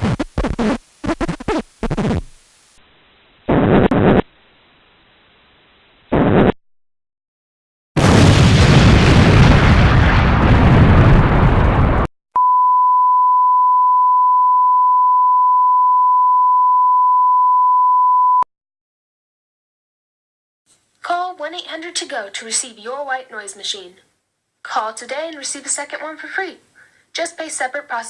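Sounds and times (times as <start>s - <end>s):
loud explosion-like blast: 8.0s - 12.1s
steady beep tone: 12.4s - 18.5s.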